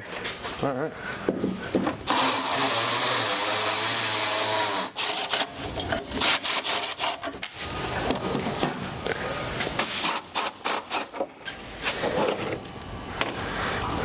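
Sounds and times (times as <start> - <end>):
power tool running: 2.0 - 5.5.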